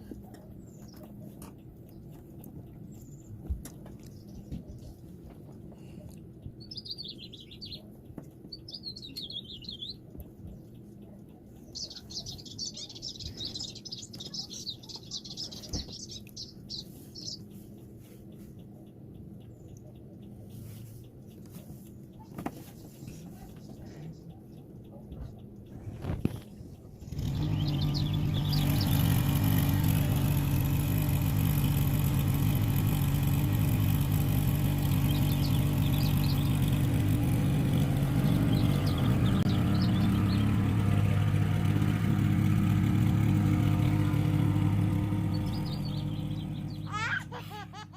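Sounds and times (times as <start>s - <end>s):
motor engine humming: 0.0s - 47.9s
click: 0.1s - 22.7s
faint high chirps: 6.4s - 18.4s, 32.0s - 42.0s.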